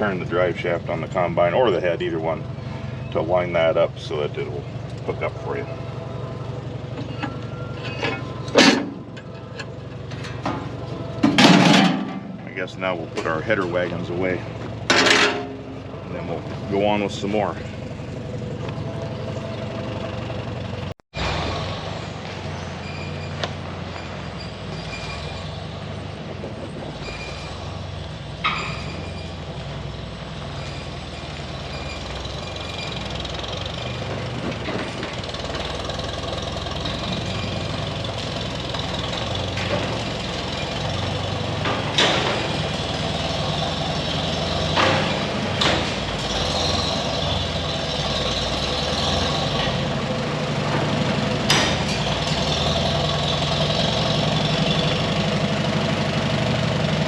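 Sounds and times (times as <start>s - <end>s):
farm machine engine running: 0.0s - 57.0s
metal clanks and rattles: 6.8s - 18.8s, 26.3s - 54.7s.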